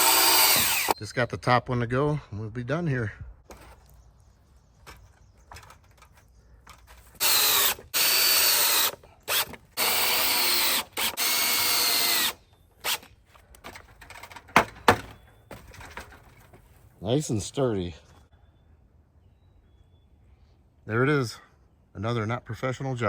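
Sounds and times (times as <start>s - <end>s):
power drill driving screws: 0.0s - 1.0s, 7.2s - 13.1s
sharp knocks: 14.5s - 16.1s.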